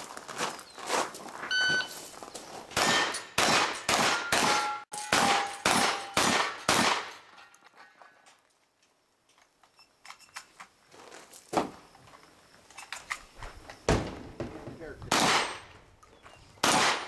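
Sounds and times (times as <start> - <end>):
shot timer beep: 1.5 - 1.9
steel targets clanging: 2.7 - 8.0
shotgun shots: 2.8 - 7.2, 13.9 - 15.7, 16.6 - 17.0.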